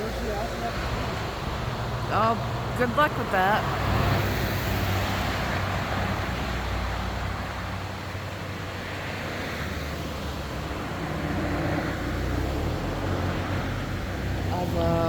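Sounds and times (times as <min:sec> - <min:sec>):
river flowing over rocks: 0:03.6 - 0:15.0.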